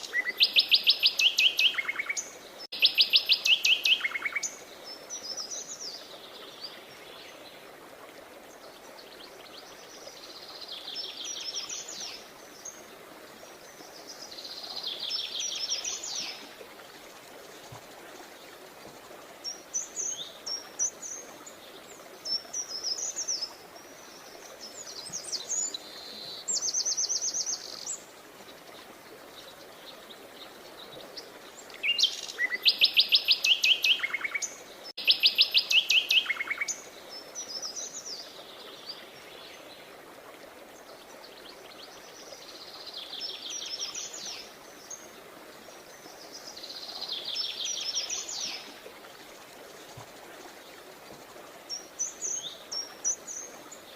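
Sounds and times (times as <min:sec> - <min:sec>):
songbirds singing and chirping: 0:00.0 - 0:07.7, 0:08.5 - 0:40.0, 0:40.6 - 0:53.9
faint steady hiss: 0:00.0 - 0:53.9.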